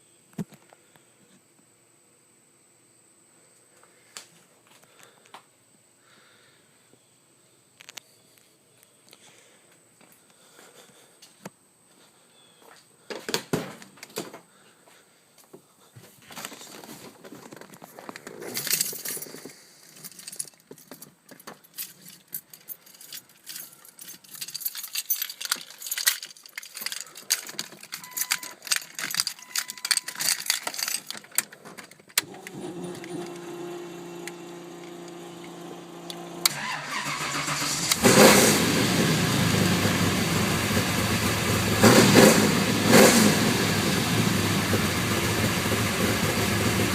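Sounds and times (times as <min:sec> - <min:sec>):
clicks and rattles: 0:16.4 - 0:33.4
car engine starting and revving: 0:32.2 - 0:46.9.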